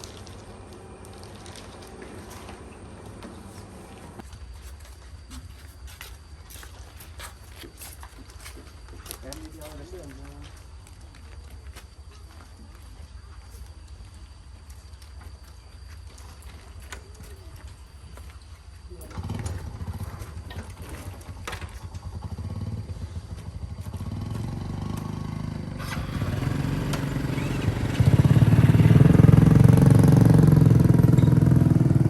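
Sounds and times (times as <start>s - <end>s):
motorcycle engine running: 19.1s - 32.0s.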